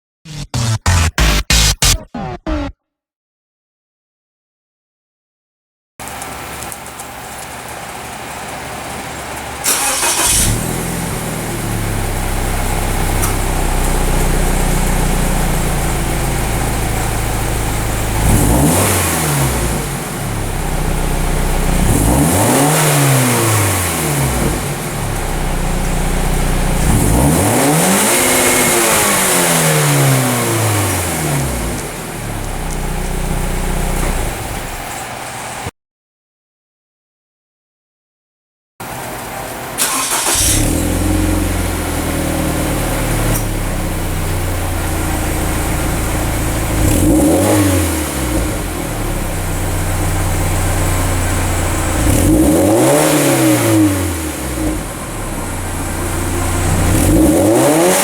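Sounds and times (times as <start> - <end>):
car engine revving: 0.3 - 2.7, 9.7 - 34.9, 39.8 - 58.0
car engine starting and idling: 9.6 - 34.9, 39.8 - 58.0.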